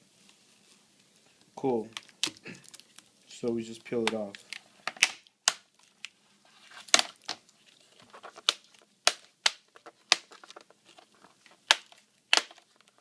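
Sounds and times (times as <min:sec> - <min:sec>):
plastic crackles: 0:01.1 - 0:13.0
plastic clips snapping loose: 0:04.0 - 0:05.6, 0:11.6 - 0:12.7.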